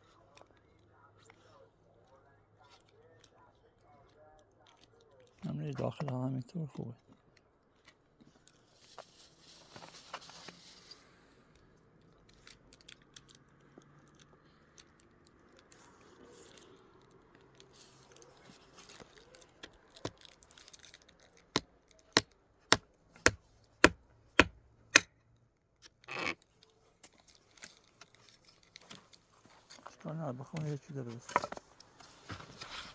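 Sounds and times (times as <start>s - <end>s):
rustling and small clicks: 2.0s - 23.7s, 25.0s - 32.9s.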